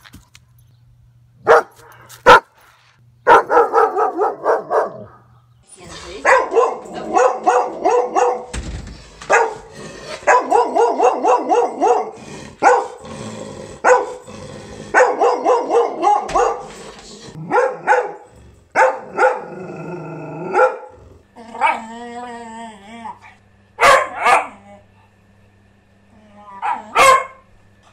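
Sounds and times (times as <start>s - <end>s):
dog barking: 1.4s - 2.5s, 3.2s - 5.3s, 6.2s - 8.5s, 9.3s - 13.0s, 13.8s - 14.2s, 14.9s - 16.6s, 17.4s - 18.2s, 18.8s - 19.5s, 20.5s - 21.0s, 23.8s - 24.6s, 26.6s - 27.5s.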